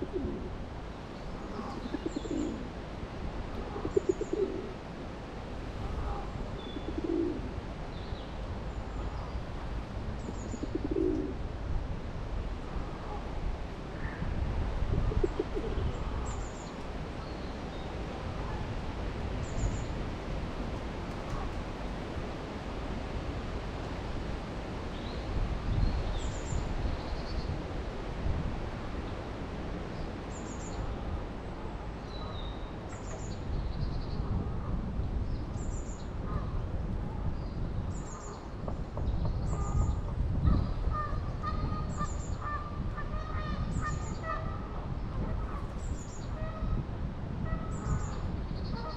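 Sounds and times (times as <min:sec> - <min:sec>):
low rumble of wind: 0:00.0 - 0:48.9.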